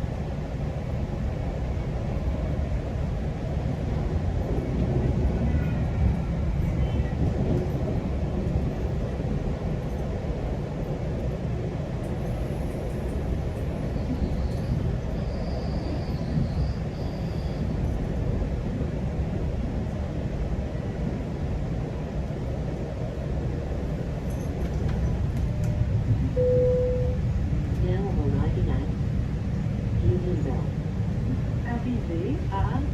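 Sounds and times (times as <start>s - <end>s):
train wheels rumbling on track: 0.0s - 32.9s
faint high squeal: 14.2s - 17.6s.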